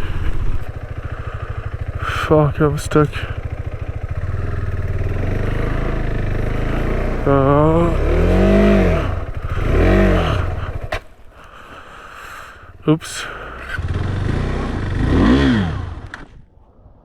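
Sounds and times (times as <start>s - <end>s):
motorcycle engine revving: 0.0s - 12.0s, 13.4s - 16.5s
click: 16.0s - 16.3s.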